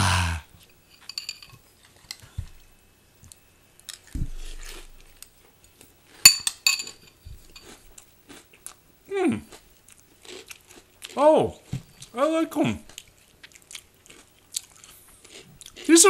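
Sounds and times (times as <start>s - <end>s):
metal spoon clinking on bowl: 0.9s - 1.6s, 6.3s - 7.7s
cereal crunching while chewed: 3.8s - 5.9s, 7.5s - 8.8s, 9.5s - 12.2s, 12.9s - 16.0s.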